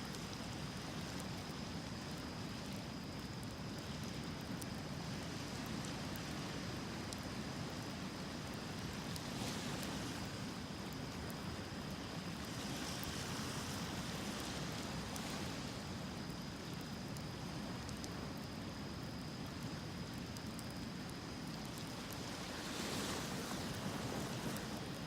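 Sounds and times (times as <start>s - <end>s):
bonfire crackling: 0.0s - 25.0s
surf washing on shore: 5.3s - 16.6s, 21.5s - 25.0s.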